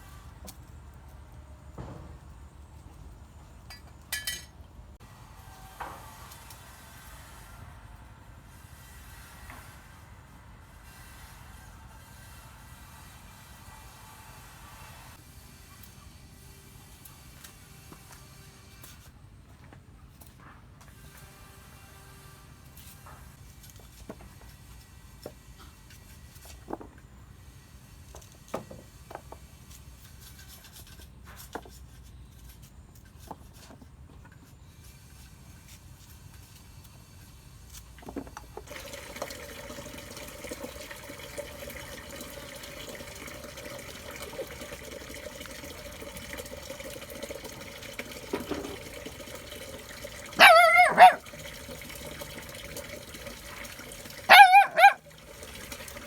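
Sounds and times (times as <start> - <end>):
running water: 38.6 - 56.0
dog barking: 50.4 - 51.2, 54.3 - 55.0.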